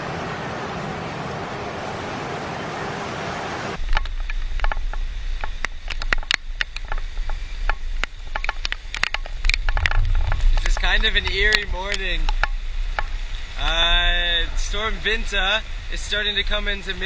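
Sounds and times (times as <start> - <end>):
river water rushing: 0.0 - 3.9
low rumble: 3.6 - 17.0.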